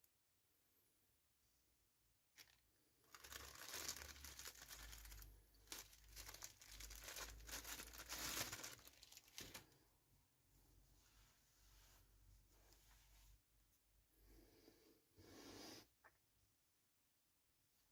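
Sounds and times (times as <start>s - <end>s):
packaging crinkling and tearing: 2.4s - 9.8s.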